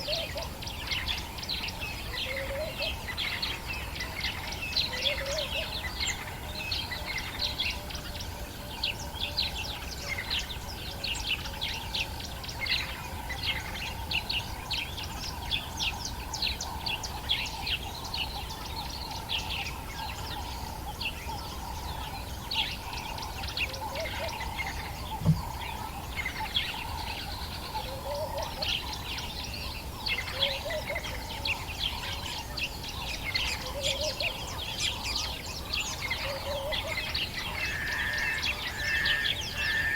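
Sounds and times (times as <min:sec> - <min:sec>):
birds chirping and calling: 0:12.5 - 0:39.9.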